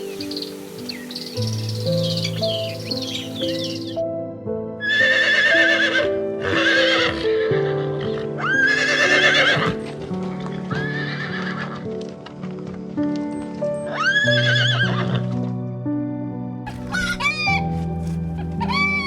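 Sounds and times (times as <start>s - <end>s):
soft background music: 0.0s - 19.0s
horse whinnying: 4.8s - 7.3s, 8.4s - 9.8s, 10.8s - 11.7s.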